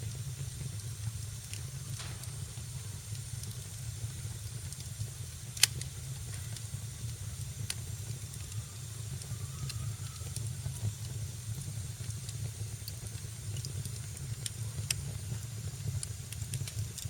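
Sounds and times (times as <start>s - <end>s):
fire crackling: 0.0s - 17.0s
wood fire rumble and hiss: 0.0s - 17.0s
loud fire pop: 1.9s - 4.6s.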